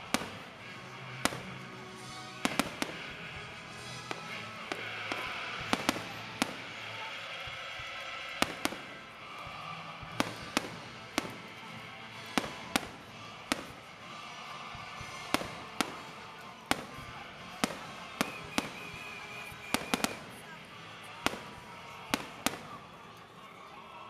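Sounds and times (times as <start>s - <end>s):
firework shells bursting: 0.0s - 7.1s, 8.3s - 14.0s, 15.0s - 20.4s
background noise: 0.0s - 24.0s.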